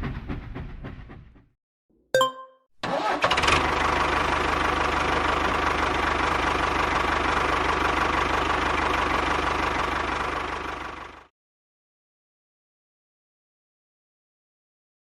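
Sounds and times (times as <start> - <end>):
small tractor engine idling: 3.0 - 11.3.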